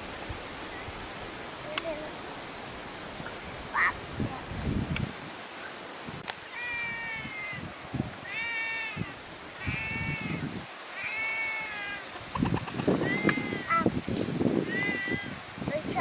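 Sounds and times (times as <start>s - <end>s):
animal calling: 3.7s - 4.0s, 6.5s - 10.4s, 11.0s - 13.9s, 14.6s - 15.4s.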